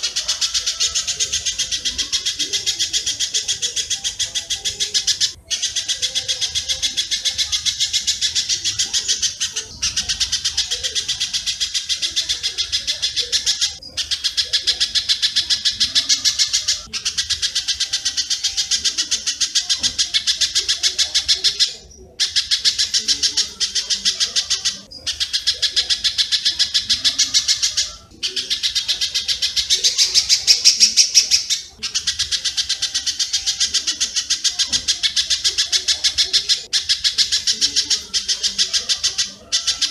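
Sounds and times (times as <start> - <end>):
rapid high bird chirps: 0.0 - 39.9.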